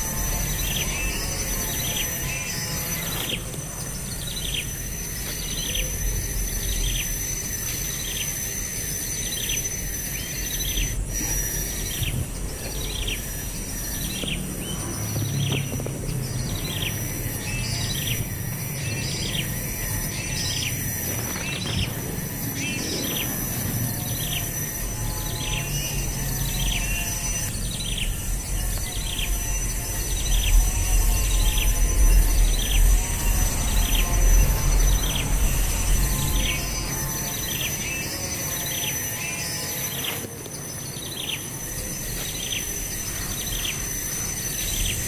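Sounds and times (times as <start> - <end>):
high insect drone: 0.0 - 45.0
low rumble: 27.4 - 37.4.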